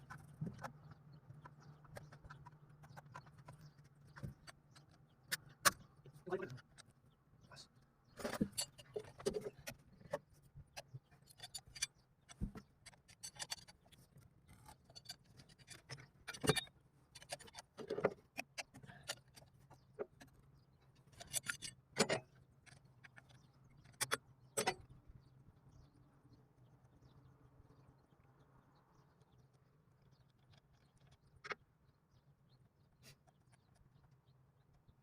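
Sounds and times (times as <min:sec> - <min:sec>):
metal tools clinking and knocking: 0:08.2 - 0:10.2, 0:10.8 - 0:20.4, 0:21.0 - 0:24.9.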